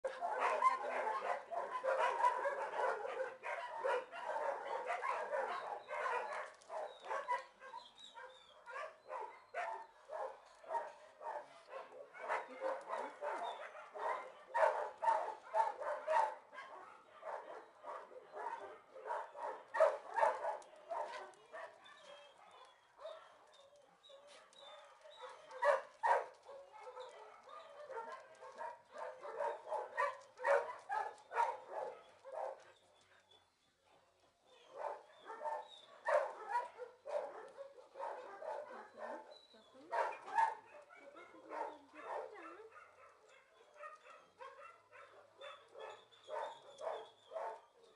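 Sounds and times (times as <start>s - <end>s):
dogs barking: 0.0s - 23.4s, 24.0s - 32.7s, 34.6s - 47.9s.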